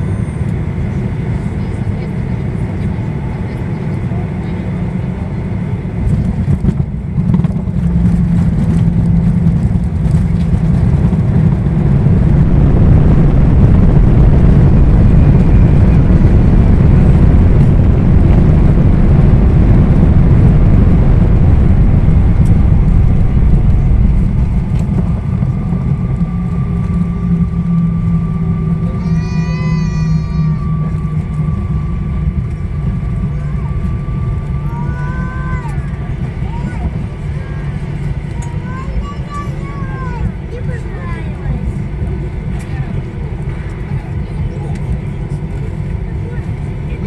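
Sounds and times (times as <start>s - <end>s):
jet engines rumbling in cabin: 0.0s - 47.0s.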